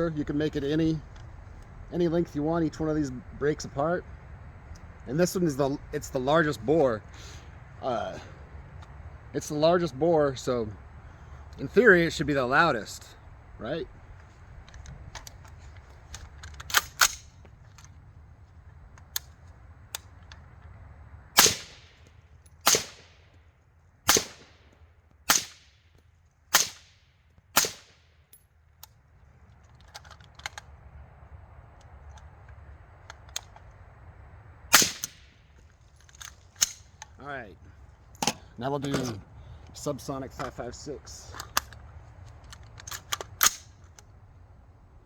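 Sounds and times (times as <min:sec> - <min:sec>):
suppressed rifle shots: 0:21.4 - 0:22.0, 0:22.6 - 0:23.2, 0:24.1 - 0:24.7, 0:25.3 - 0:25.7, 0:26.5 - 0:26.9, 0:27.5 - 0:28.0, 0:34.7 - 0:35.3.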